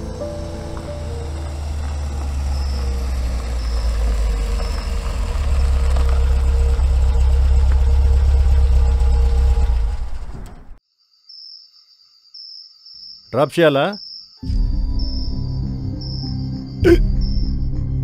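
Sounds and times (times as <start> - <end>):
car engine idling: 0.0 - 10.8.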